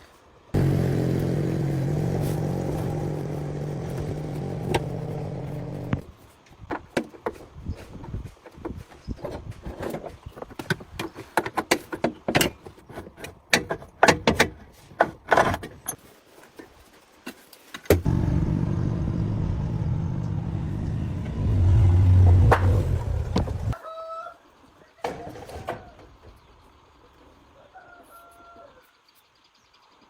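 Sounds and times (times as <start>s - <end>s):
engine droning: 0.6s - 6.0s, 18.0s - 23.8s.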